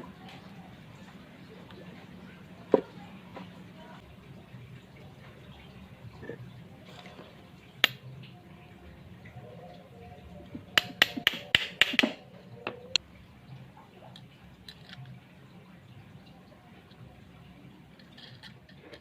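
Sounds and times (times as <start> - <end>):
hard objects clicking and knocking: 10.6 - 12.8.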